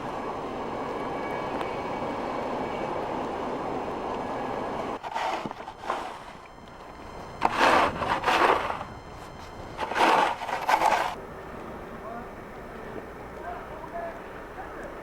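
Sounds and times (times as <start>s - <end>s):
long scraping strokes: 5.0s - 6.5s, 7.4s - 11.2s.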